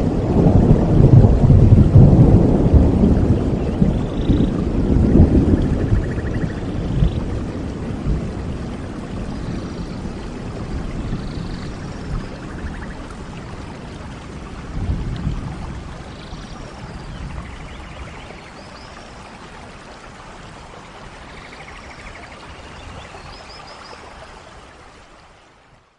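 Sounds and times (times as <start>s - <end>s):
rain: 0.0s - 25.9s
birds chirping and trilling: 3.6s - 4.6s.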